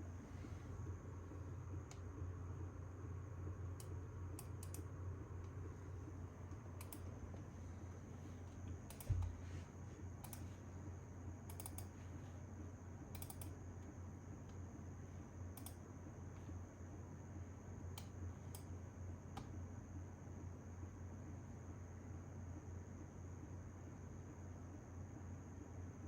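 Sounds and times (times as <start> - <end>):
steady low hum: 0.0 - 26.0
computer keyboard keys clicking: 6.8 - 7.1, 11.5 - 11.9, 13.1 - 13.5.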